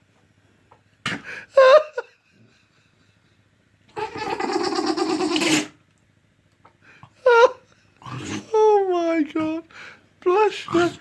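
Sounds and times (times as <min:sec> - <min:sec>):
dog sneezing: 0:01.0 - 0:01.4, 0:04.0 - 0:05.8.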